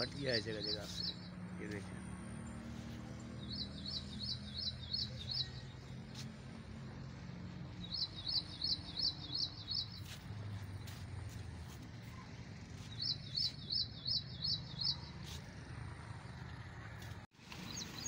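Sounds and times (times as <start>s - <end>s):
songbird calling: 0.0s - 1.5s, 3.1s - 6.2s, 7.7s - 10.3s, 12.2s - 15.4s.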